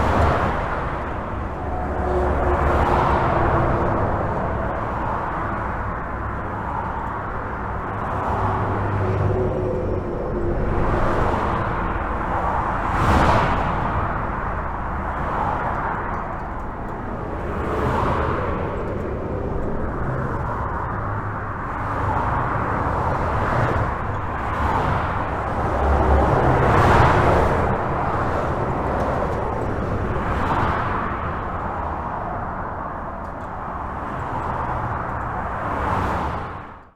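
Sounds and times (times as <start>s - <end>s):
highway traffic rumble: 0.0s - 36.9s
vehicles passing: 0.0s - 36.9s.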